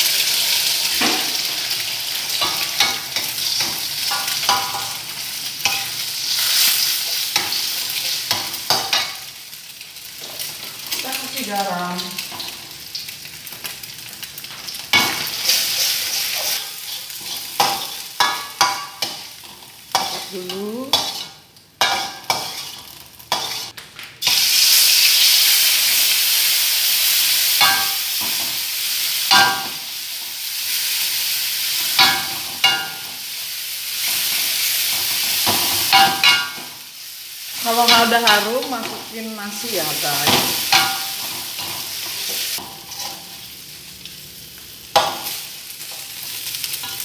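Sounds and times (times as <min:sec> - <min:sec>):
paste sizzling in hot oil: 0:00.0 - 0:47.0
metal spatula scraping wok: 0:14.9 - 0:23.8, 0:39.8 - 0:43.4.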